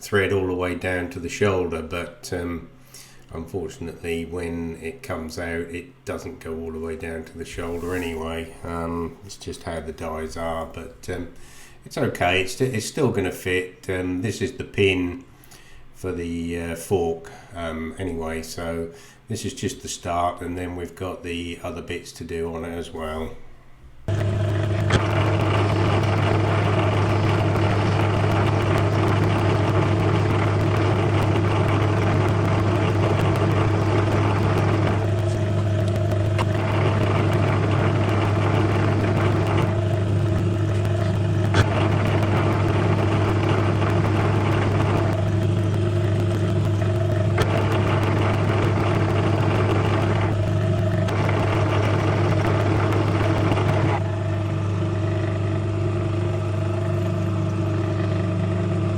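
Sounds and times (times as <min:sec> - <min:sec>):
lathe cutting noise: 0:24.1 - 0:58.9
lathe motor hum: 0:24.1 - 0:58.9.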